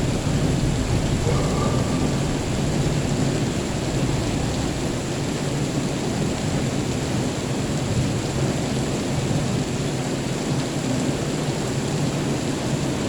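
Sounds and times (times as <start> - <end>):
low rumble of thunder: 0.0 - 10.2
heavy rain: 0.0 - 13.0.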